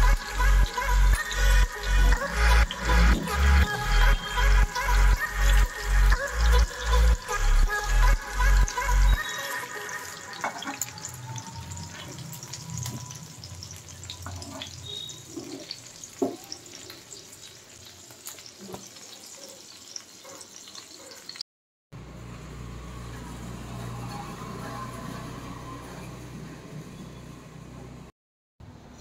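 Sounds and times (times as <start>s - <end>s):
kebabs sizzling in hot oil: 0.0s - 21.4s.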